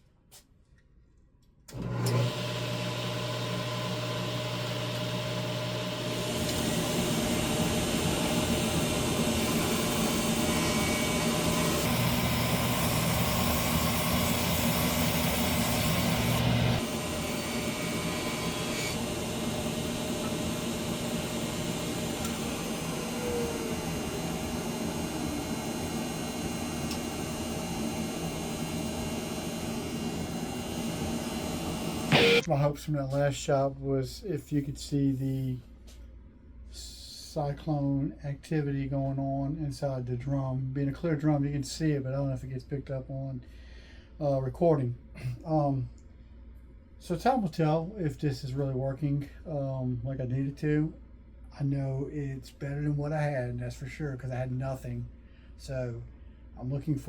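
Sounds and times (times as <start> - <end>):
table saw cutting board: 2.0 - 32.5.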